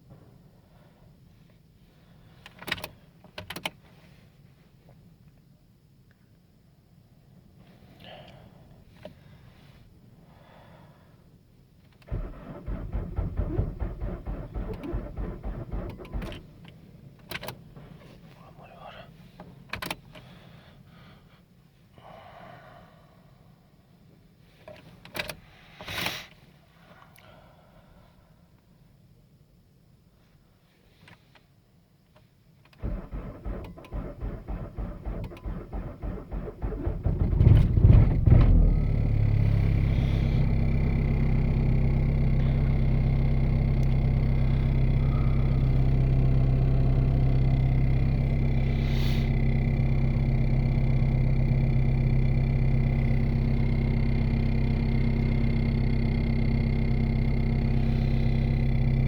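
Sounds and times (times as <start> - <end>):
engine starter cranking: 12.0 - 16.7, 32.7 - 55.6.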